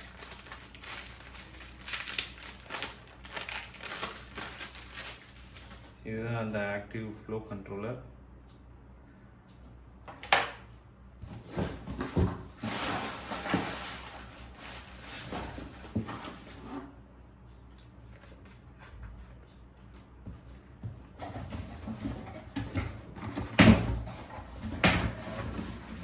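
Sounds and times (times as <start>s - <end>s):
rustling and scraping: 11.2s - 17.0s, 18.1s - 26.0s.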